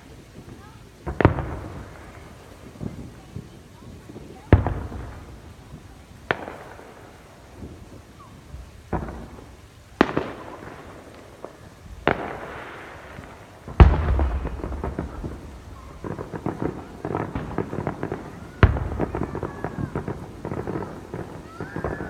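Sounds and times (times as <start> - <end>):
fireworks booming: 0.0 - 22.0
fireworks crackling pops: 0.0 - 22.0.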